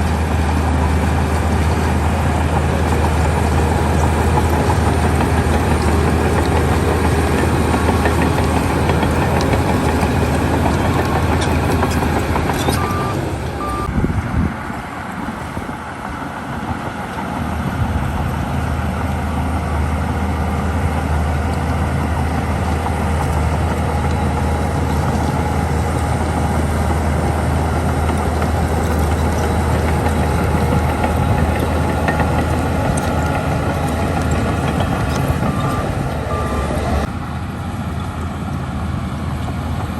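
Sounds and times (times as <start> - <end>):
diesel machinery engine hum: 0.0 - 39.9
short high beeps: 12.7 - 13.9, 35.5 - 37.0.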